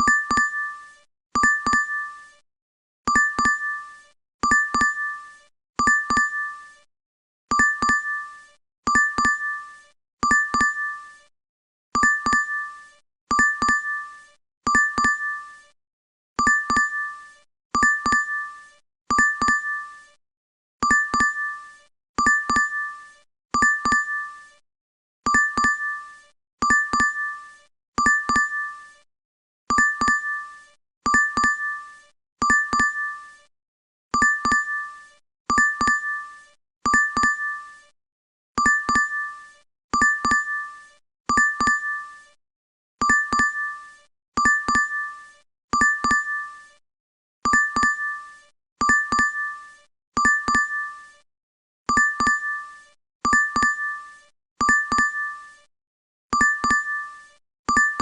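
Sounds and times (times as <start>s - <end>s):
two-tone notification chime: 1.4s - 2.0s, 43.1s - 43.6s, 45.8s - 46.4s, 47.5s - 48.1s, 48.8s - 49.5s, 50.2s - 50.8s, 51.9s - 52.5s, 53.3s - 53.9s, 54.6s - 55.2s, 56.4s - 57.0s.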